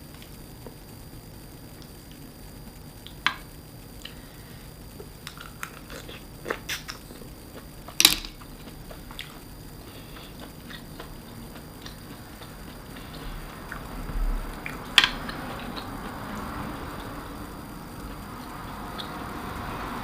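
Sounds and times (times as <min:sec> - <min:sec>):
person chewing food: 0:04.0 - 0:19.2.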